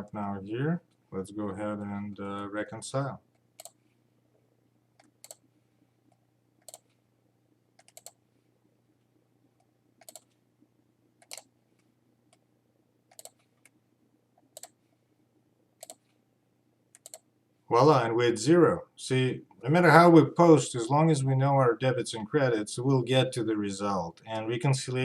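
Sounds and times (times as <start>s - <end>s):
faint low hum: 0.0s - 25.0s
computer mouse clicks: 3.3s - 3.8s, 5.0s - 5.5s, 6.1s - 7.0s, 7.8s - 8.2s, 9.6s - 10.4s, 11.2s - 12.4s, 13.1s - 13.8s, 14.4s - 14.8s, 15.8s - 16.2s, 16.9s - 17.3s.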